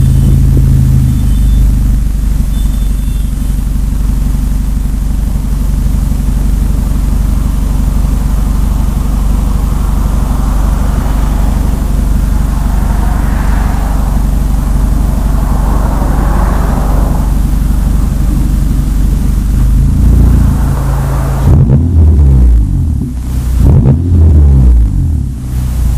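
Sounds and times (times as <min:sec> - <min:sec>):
car exhaust low drone: 0:00.0 - 0:25.9
rushing noise: 0:06.0 - 0:22.2.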